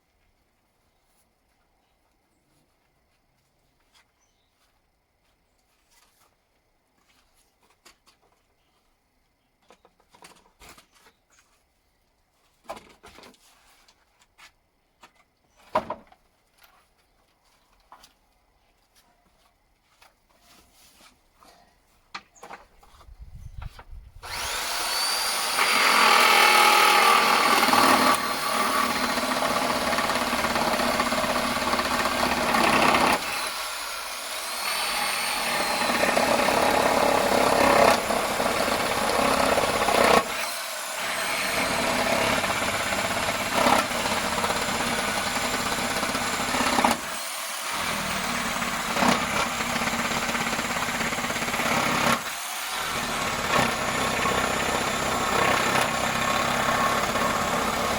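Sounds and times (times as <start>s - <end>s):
reciprocating saw cutting wood: 24.2s - 57.9s.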